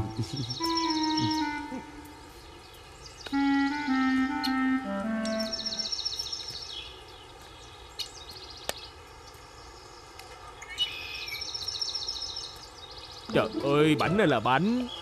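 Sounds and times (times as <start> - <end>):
bird chirping trill: 0.0 - 9.0
steady background hiss: 0.0 - 15.0.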